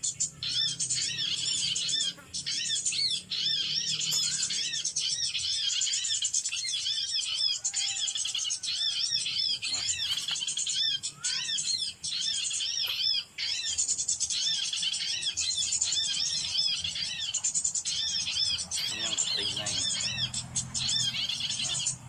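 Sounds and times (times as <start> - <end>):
small songbirds chirping: 0.0 - 22.0.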